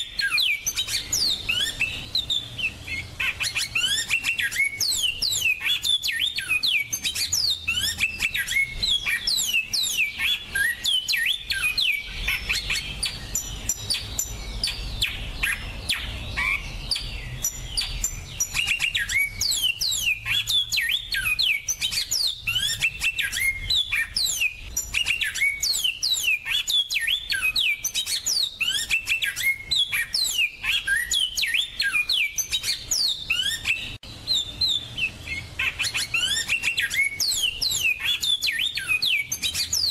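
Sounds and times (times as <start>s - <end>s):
finch singing chirps and trills: 0.0s - 39.9s.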